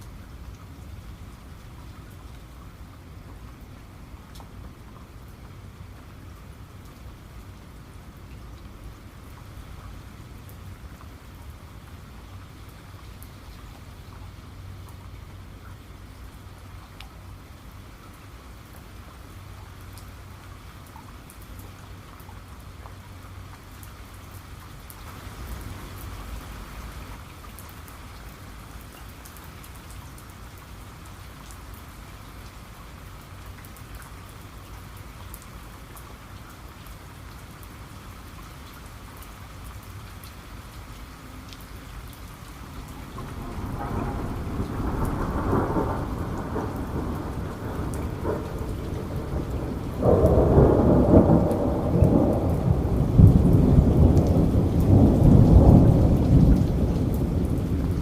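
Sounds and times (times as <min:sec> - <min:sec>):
rain drop ticks: 0:00.0 - 0:58.0
steady rain: 0:00.0 - 0:58.0
thunder rolling: 0:43.0 - 0:58.0.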